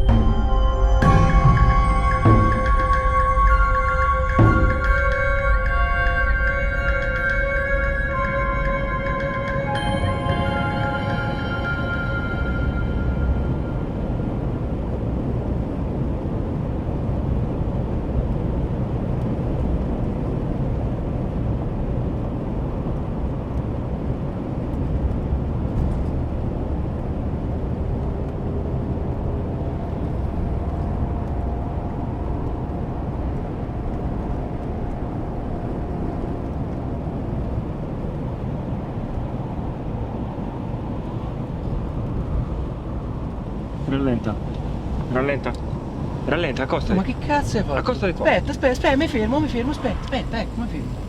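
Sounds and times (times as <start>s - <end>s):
faint rising whine: 0.0s - 16.1s
vehicle engine and road rumble: 0.0s - 51.0s.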